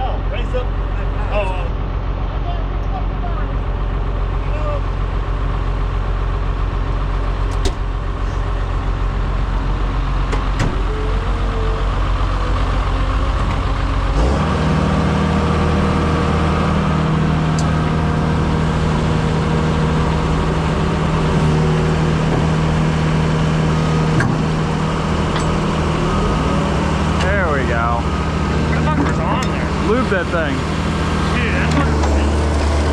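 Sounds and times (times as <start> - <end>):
diesel engine running and revving: 0.0 - 32.9
sharp metallic knocks: 7.5 - 8.2.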